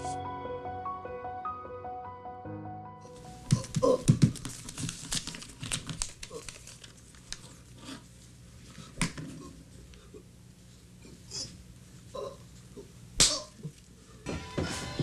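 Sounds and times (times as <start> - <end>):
rustling and crinkling handling: 3.5 - 8.3.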